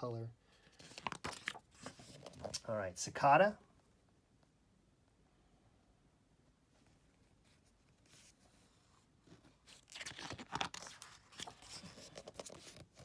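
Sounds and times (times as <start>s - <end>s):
book page rustling: 0.7s - 2.6s, 9.3s - 13.0s.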